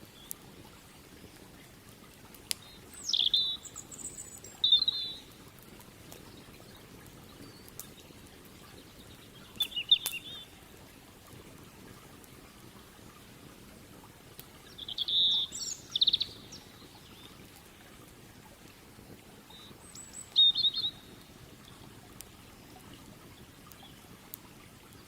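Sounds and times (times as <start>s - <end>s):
songbird chirps and trills: 2.5s - 5.4s, 6.2s - 10.6s, 14.6s - 17.8s, 19.5s - 22.7s.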